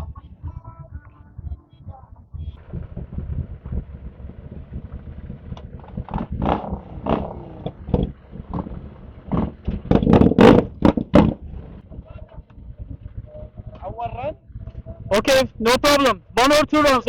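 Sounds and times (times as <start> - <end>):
loud sharp bursts: 2.6 - 11.9
motorcycle engine revving: 2.6 - 16.4.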